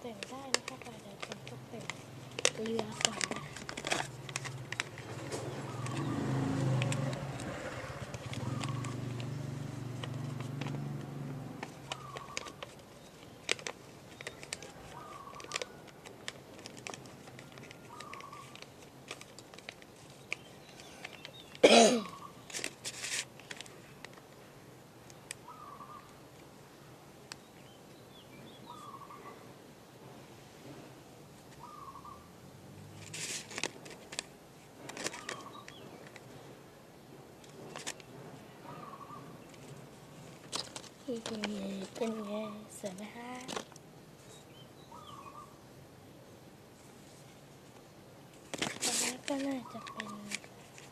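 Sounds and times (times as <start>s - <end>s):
bird calling: 4.9s - 9.2s, 11.8s - 13.3s, 14.1s - 15.8s, 17.8s - 18.8s, 20.4s - 22.5s, 25.4s - 26.2s, 28.4s - 29.4s, 31.5s - 32.3s, 35.2s - 36.0s, 38.6s - 39.7s, 44.3s - 45.6s, 49.4s - 50.4s.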